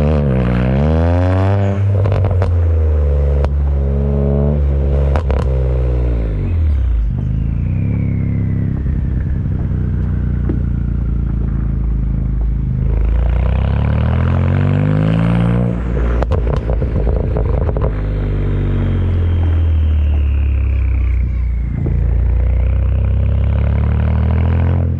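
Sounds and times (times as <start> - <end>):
car engine revving: 0.0 - 24.9
exhaust crackles: 0.0 - 24.9
turbo whine: 3.1 - 14.1, 15.7 - 24.1.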